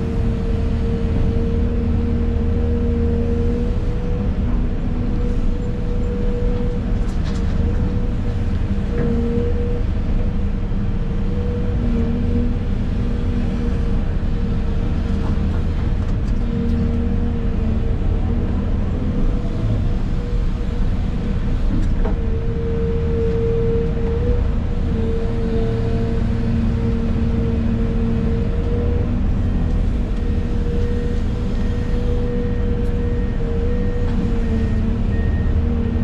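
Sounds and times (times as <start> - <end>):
excavator engine drone: 0.0 - 36.0.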